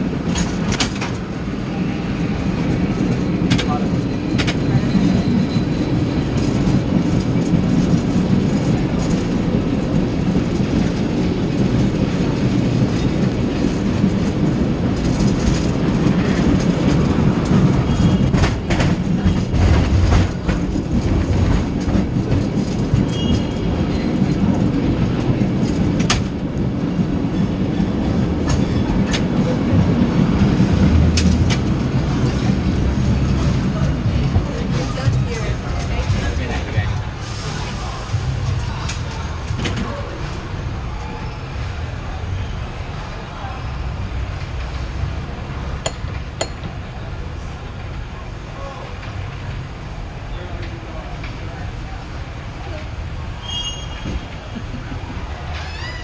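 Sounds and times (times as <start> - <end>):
sharp clacks of tram wheels: 0.0 - 41.7
tram rumbling and rattling on rails: 0.0 - 56.0.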